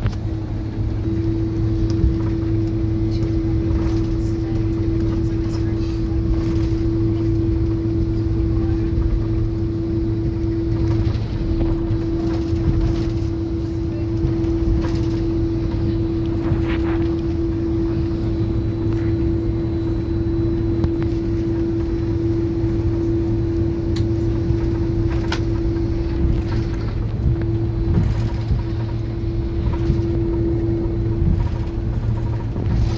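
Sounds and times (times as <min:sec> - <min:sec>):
air and engine noise: 0:00.0 - 0:32.9
aircraft cabin hum: 0:00.0 - 0:32.9.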